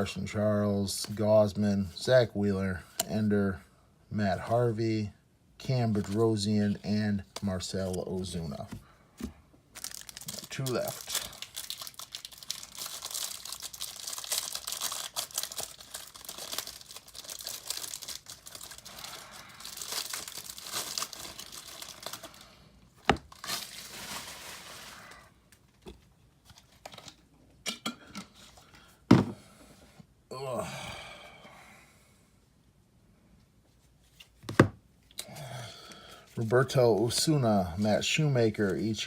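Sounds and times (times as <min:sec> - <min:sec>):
packaging crinkling and tearing: 0:09.7 - 0:25.3.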